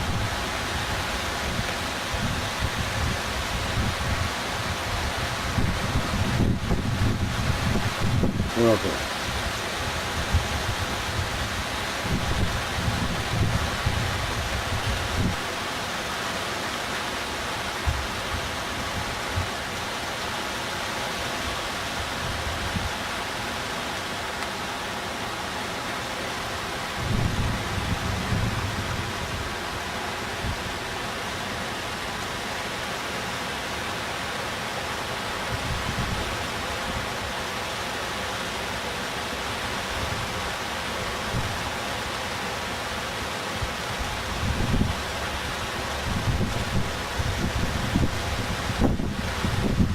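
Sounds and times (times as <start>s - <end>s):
wind buffeting microphone: 0.0s - 8.6s, 9.3s - 15.5s, 26.9s - 30.9s, 35.4s - 37.1s, 44.1s - 49.9s
floodwater rushing: 0.0s - 49.9s.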